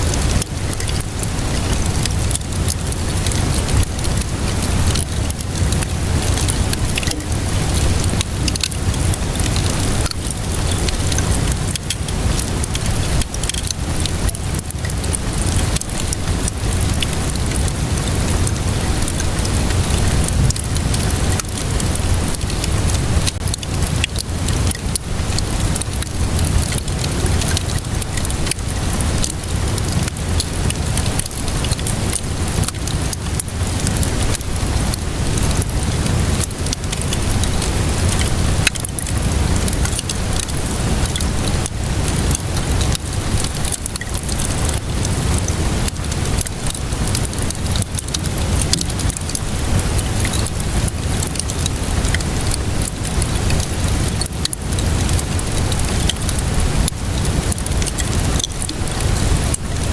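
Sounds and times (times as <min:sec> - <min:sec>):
steady rainfall: 0:00.0 - 0:59.9
wood fire crackling: 0:00.0 - 0:59.9.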